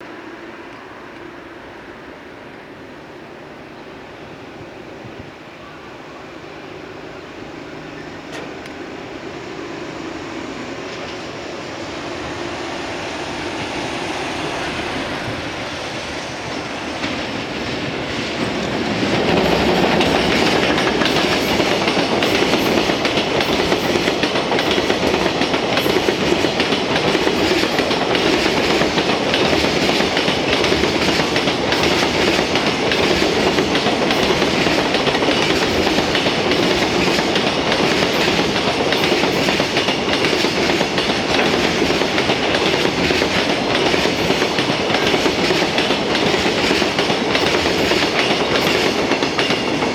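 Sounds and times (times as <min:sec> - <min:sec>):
freight train rumbling past: 0:00.0 - 0:49.9
wheels clacking over rail joints: 0:14.6 - 0:49.9.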